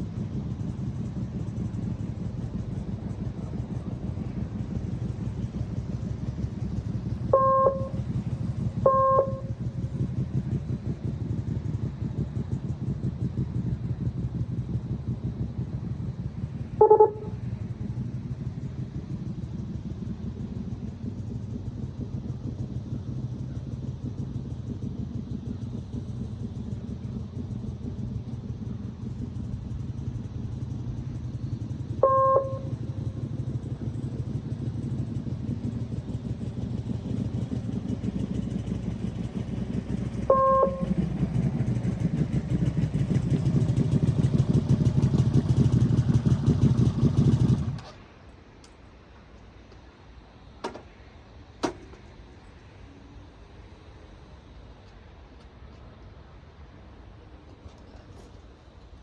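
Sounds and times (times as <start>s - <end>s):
motorcycle engine running: 0.0s - 48.0s
short electronic beeps: 7.3s - 8.0s, 8.9s - 9.5s, 16.8s - 17.4s, 32.0s - 32.7s, 40.3s - 41.0s.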